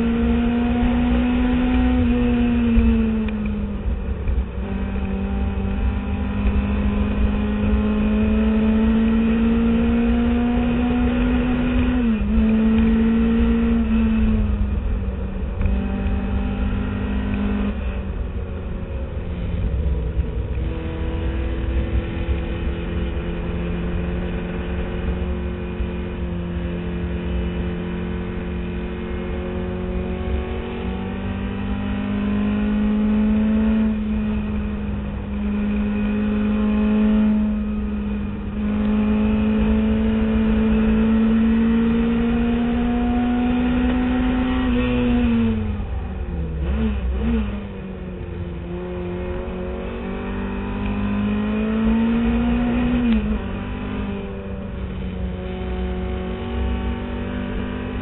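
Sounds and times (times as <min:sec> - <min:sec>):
car engine revving: 0:00.0 - 0:58.0
steady low rumble: 0:02.0 - 0:04.8, 0:13.7 - 0:26.1, 0:44.9 - 0:49.8.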